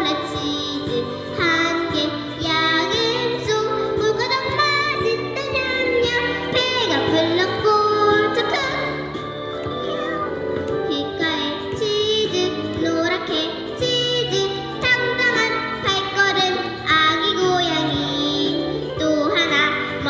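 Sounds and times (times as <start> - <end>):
backing track with steady beat: 0.0 - 20.0
girl singing into microphone: 0.0 - 20.0.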